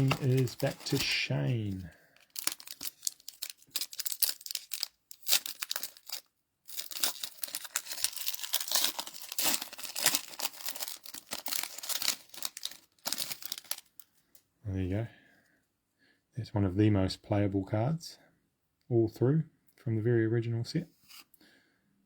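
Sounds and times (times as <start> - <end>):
wrapper tearing and crinkling: 0.0 - 14.0.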